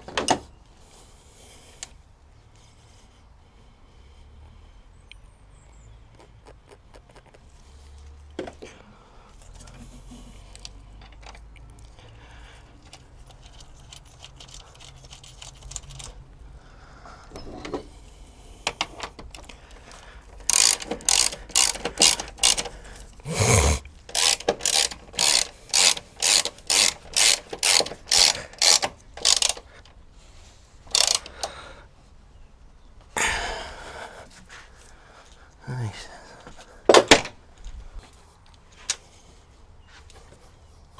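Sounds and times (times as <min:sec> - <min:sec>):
tool handling: 0:20.3 - 0:22.7, 0:23.3 - 0:29.7, 0:30.9 - 0:31.3
ratchet wrench clicking: 0:20.4 - 0:29.7, 0:30.9 - 0:31.5.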